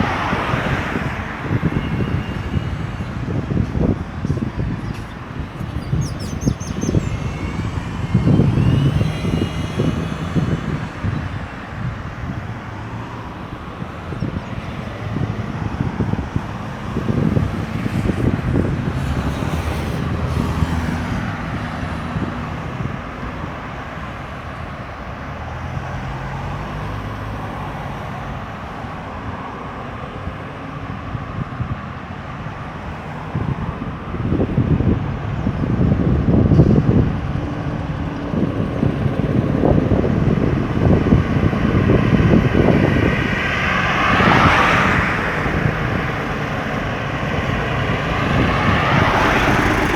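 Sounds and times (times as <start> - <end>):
highway traffic passing: 0.0 - 49.9.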